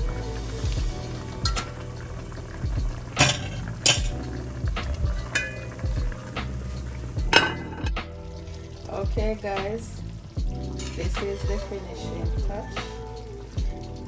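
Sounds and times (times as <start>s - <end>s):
low steady hum: 0.0s - 13.8s
spoon clinking against a pot: 1.4s - 8.0s.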